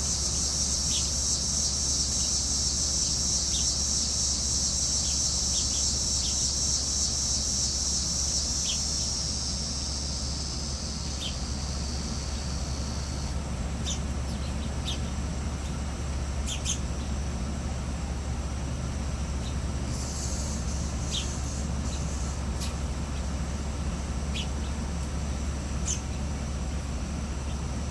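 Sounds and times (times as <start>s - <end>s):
high-pitched insect drone: 0.0s - 13.4s, 19.9s - 22.4s
small birds chirping: 0.0s - 17.3s, 19.3s - 23.2s, 23.8s - 24.8s, 25.4s - 26.3s.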